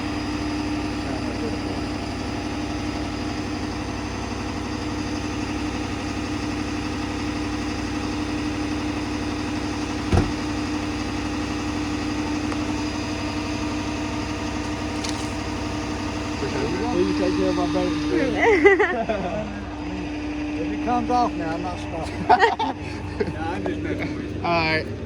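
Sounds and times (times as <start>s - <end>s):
vehicle engine idling: 0.0s - 25.0s
sharp knock: 10.1s - 10.4s.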